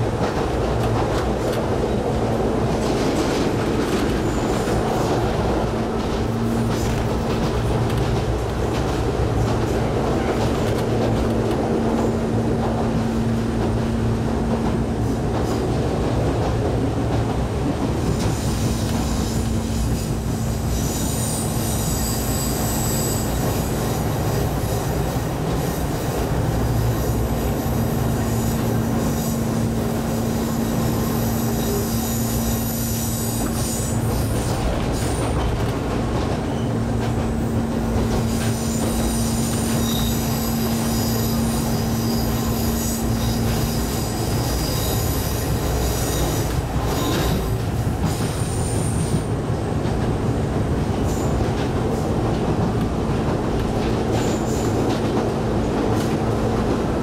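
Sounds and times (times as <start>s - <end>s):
train wheels rumbling on rail: 0.0s - 57.0s
wheel squeal: 38.2s - 47.5s.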